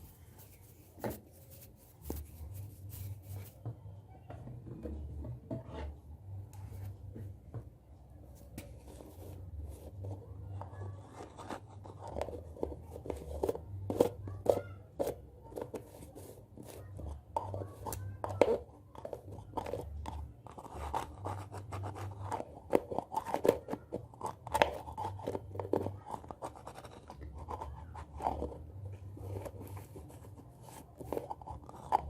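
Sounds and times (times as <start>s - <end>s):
hands rubbing and brushing: 0.0s - 3.6s.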